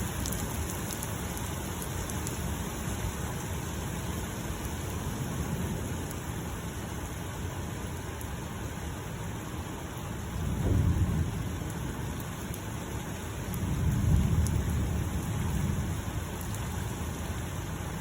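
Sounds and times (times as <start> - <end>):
steady rain: 0.0 - 18.0
thunder rumbling: 10.4 - 12.1, 13.5 - 16.5.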